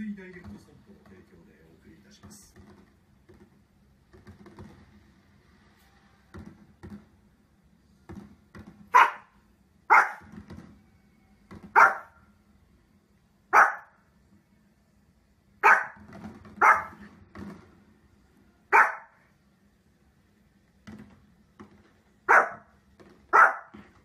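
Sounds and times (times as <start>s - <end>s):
small dog barking: 8.9s - 10.3s, 11.7s - 12.2s, 13.5s - 14.0s, 15.6s - 16.0s, 16.6s - 17.0s, 18.7s - 19.2s, 22.3s - 22.7s, 23.3s - 23.8s.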